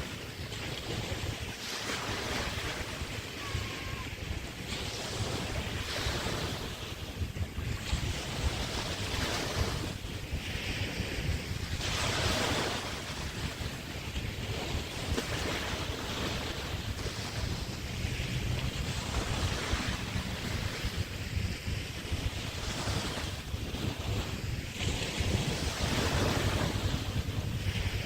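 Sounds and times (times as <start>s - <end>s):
waves washing onto beach: 0.0s - 28.0s
wind rumble on microphone: 0.0s - 28.0s.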